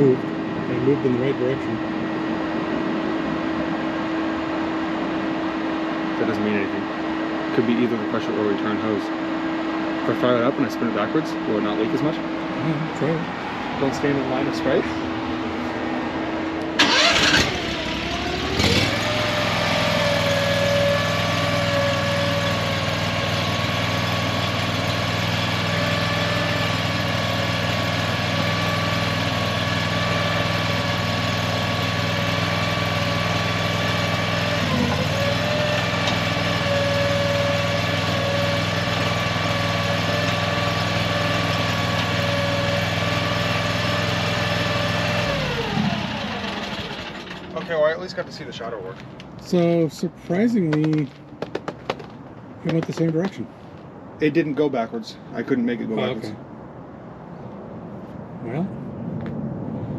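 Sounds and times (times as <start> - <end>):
engine running steadily: 0.0 - 59.9
engine starter cranking: 16.7 - 19.1.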